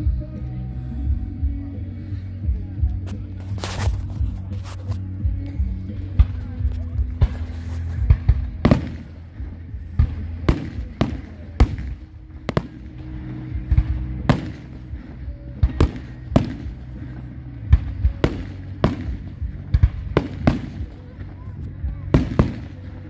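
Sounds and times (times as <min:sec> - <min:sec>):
low music: 0:00.0 - 0:23.0
fireworks bursting with crackle: 0:02.9 - 0:23.0.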